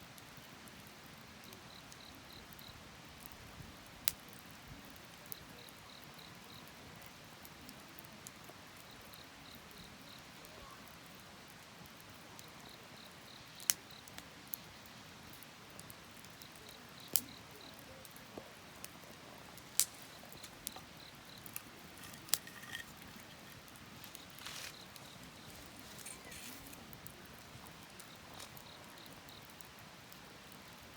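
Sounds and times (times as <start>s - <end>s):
bonfire hiss: 0.2s - 30.9s
crickets chirping: 1.7s - 2.8s, 5.4s - 6.7s, 12.4s - 15.2s, 16.2s - 30.9s
burning wood popping: 12.6s - 30.9s.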